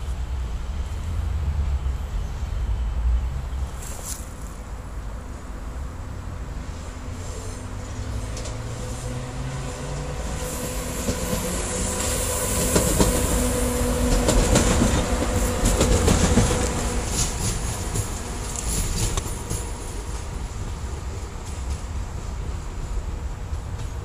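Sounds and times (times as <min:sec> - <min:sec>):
wheels clicking over rail joints: 0:09.8 - 0:22.0.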